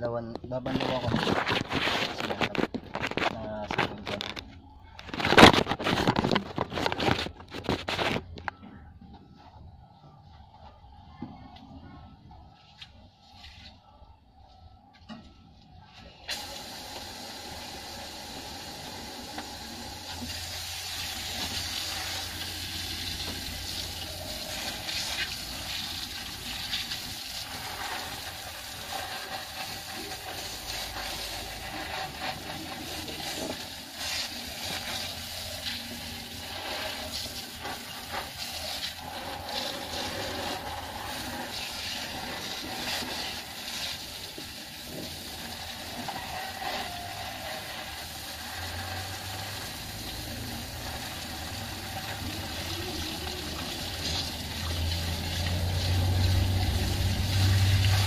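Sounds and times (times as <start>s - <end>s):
water spray hissing: 16.3s - 58.0s.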